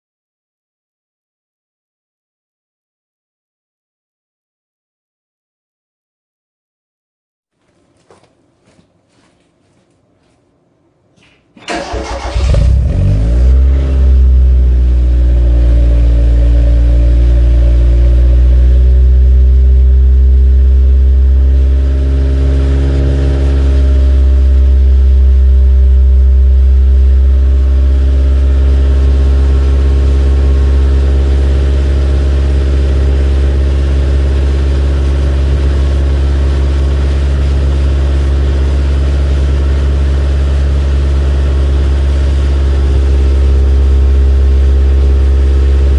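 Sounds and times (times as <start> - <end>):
car exhaust idling: 11.8 - 45.9.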